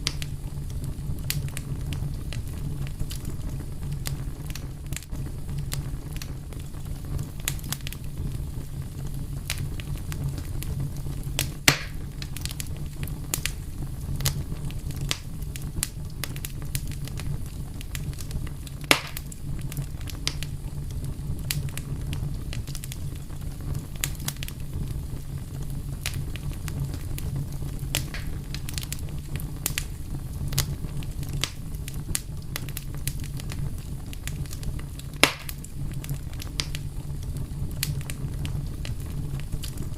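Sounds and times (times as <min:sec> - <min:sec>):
fire crackling: 0:00.0 - 0:39.9.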